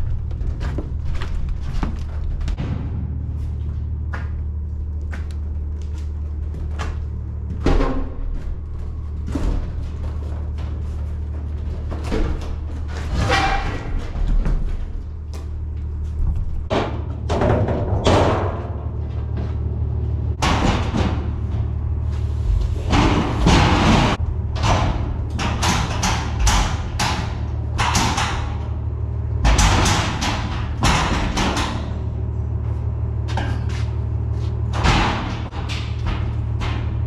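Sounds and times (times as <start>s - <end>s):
thumps knocks and scraping: 0.0s - 19.7s
steady low hum: 0.0s - 37.0s.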